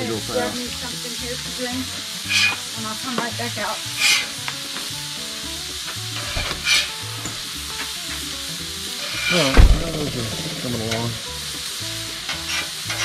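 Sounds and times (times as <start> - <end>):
food sizzling on a griddle: 0.0 - 13.0
low thump: 6.3 - 7.4, 9.5 - 10.6.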